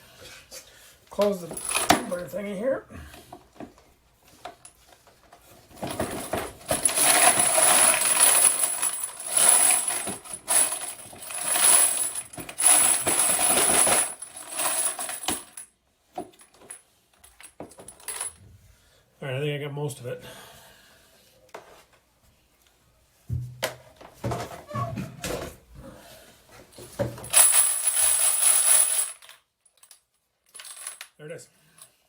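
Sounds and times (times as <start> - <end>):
brass cases rattling in tumbler: 1.4 - 2.4, 5.7 - 15.6, 27.2 - 29.2.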